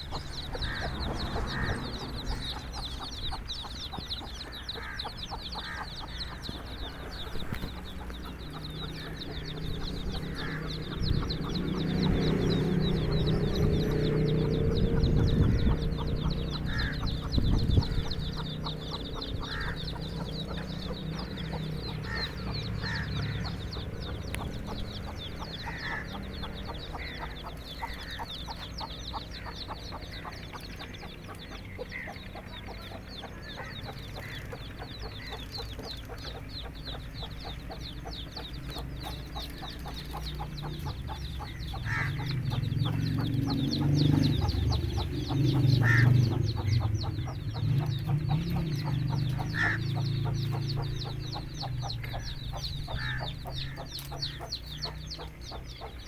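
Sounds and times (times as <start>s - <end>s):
chicks peeping: 0.0s - 56.0s
hen clucking: 0.0s - 56.0s.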